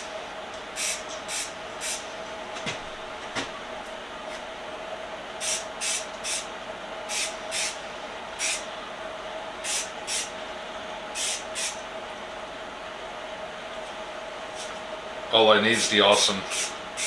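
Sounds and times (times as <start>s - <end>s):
spray paint can hissing: 5.4s - 6.4s, 7.1s - 7.8s, 8.4s - 8.6s, 9.7s - 10.3s, 11.2s - 11.8s, 16.5s - 17.0s.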